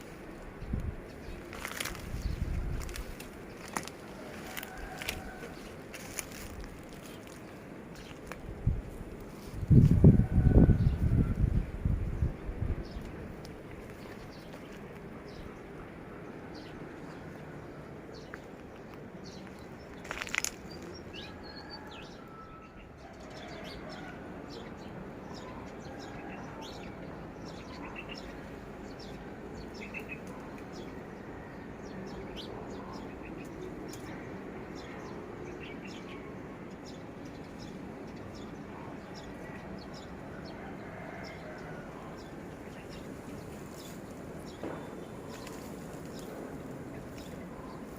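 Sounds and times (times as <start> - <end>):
small birds chirping: 0.0 - 10.1, 40.9 - 47.9
steady background noise: 0.0 - 47.9.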